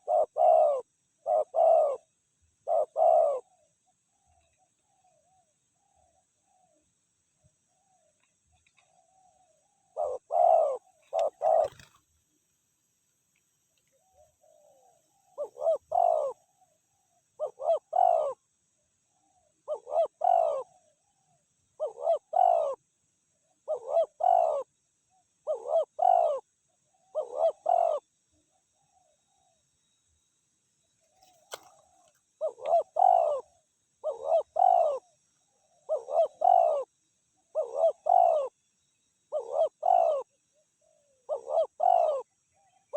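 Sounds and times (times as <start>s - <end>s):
dove cooing: 0.0s - 6.9s, 7.7s - 12.0s, 13.9s - 16.7s, 17.3s - 18.4s, 19.2s - 22.8s, 23.5s - 24.7s, 25.4s - 28.1s, 31.1s - 38.6s, 39.3s - 42.9s.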